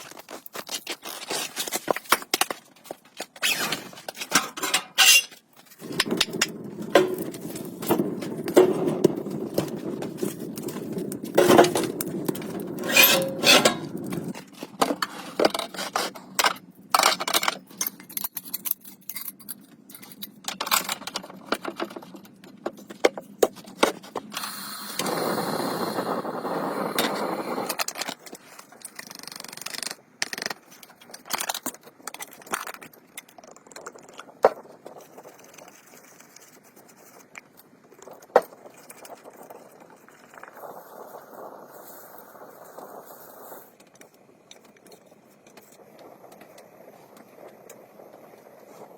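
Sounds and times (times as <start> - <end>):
objects being handled: 0.0 - 24.4.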